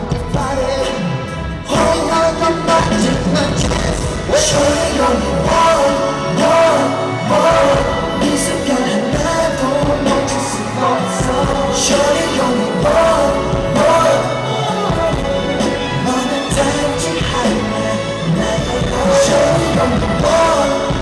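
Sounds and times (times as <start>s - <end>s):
person singing: 0.0s - 21.0s
pop concert music over loudspeakers: 0.0s - 21.0s.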